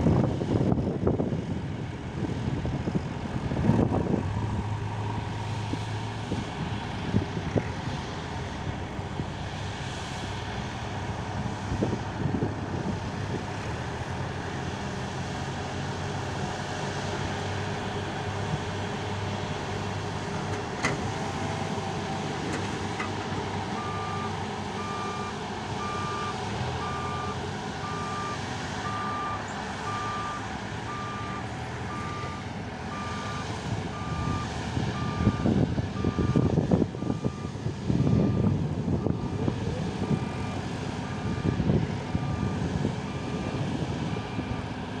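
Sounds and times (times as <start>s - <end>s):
diesel engine running: 0.0s - 45.0s
reversing alarm beeping: 23.8s - 39.2s.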